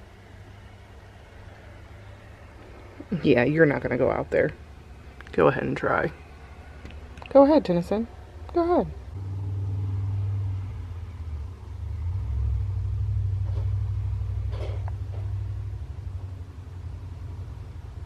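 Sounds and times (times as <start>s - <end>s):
low steady rumble: 0.0s - 18.0s
faint higher sound: 9.1s - 14.4s.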